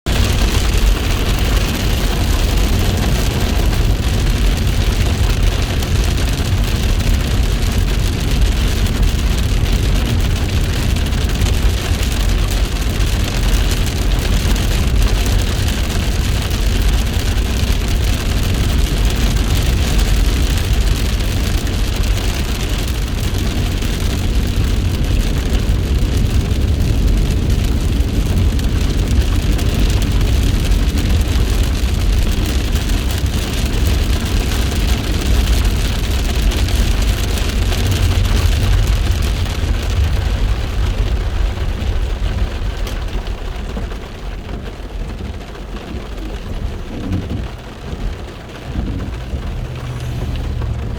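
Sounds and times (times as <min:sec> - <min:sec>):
heavy rain falling: 0:00.1 - 0:50.9
low rumble: 0:00.1 - 0:50.9.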